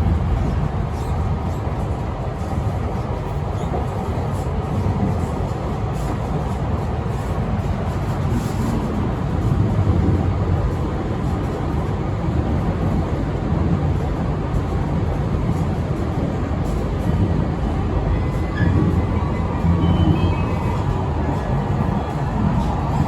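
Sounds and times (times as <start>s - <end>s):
train running low rumble: 0.0s - 23.0s.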